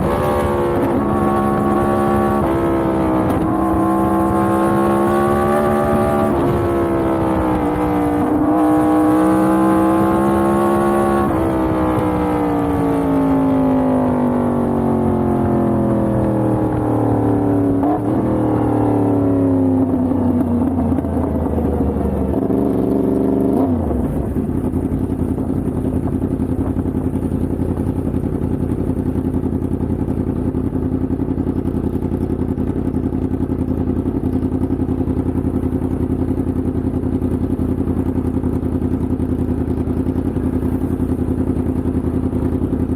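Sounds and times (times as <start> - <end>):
motorcycle engine slowing to idle: 13.1 - 42.9.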